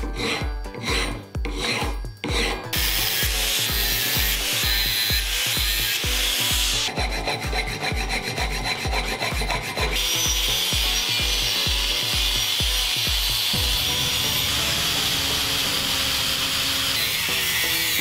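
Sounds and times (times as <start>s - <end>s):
music with thumping beat: 0.0s - 16.9s
angle grinder grinding metal: 0.0s - 18.0s
hand file rasping over metal: 0.0s - 18.0s.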